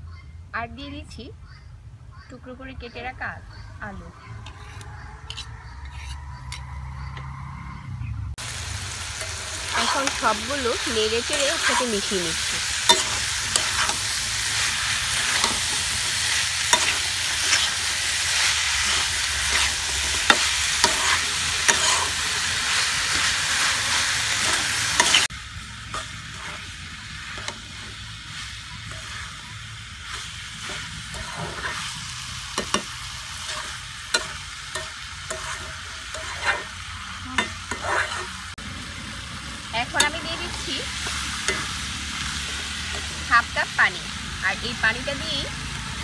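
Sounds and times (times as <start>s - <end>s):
metal spatula scraping pan: 4.4s - 6.8s, 9.2s - 25.3s, 25.9s - 29.4s, 30.0s - 38.6s
potatoes and meat sizzling in oil: 8.4s - 46.0s.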